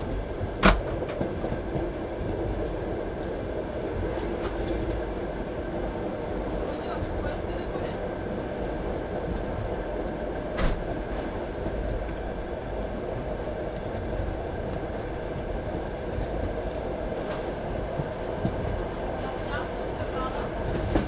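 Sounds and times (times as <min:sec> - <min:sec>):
train wheels rumbling on rails: 0:00.0 - 0:21.0
sharp knock of train wheels: 0:00.6 - 0:01.4.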